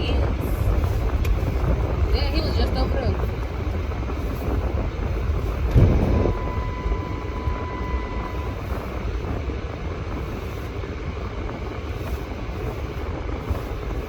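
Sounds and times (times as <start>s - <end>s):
car road and engine rumble: 0.0s - 14.0s
thin high tone: 5.9s - 9.1s.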